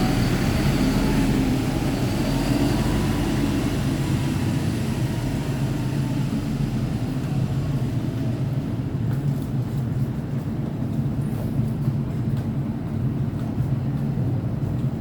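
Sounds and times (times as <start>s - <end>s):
bus diesel engine humming: 0.0s - 10.3s.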